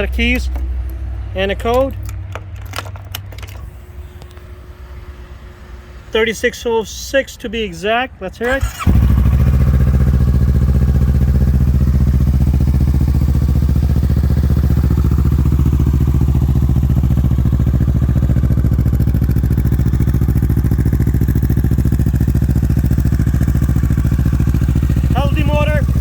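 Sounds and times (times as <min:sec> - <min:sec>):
motorcycle engine idling: 0:08.6 - 0:26.0.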